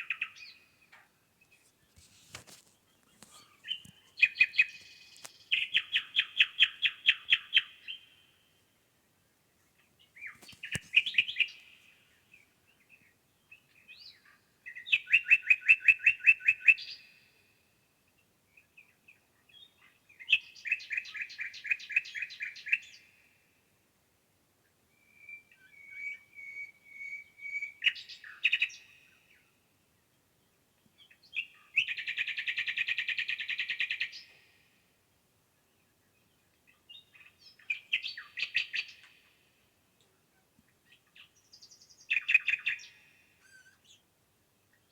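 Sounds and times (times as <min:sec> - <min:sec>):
bird chirps and calls: 0:00.0 - 0:08.2, 0:10.1 - 0:11.9, 0:36.6 - 0:39.5, 0:40.1 - 0:44.1
songbird trilling: 0:42.1 - 0:44.0.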